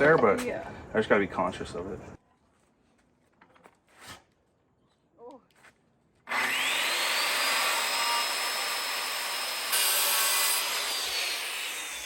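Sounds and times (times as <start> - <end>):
circular saw cutting wood: 6.3 - 12.0.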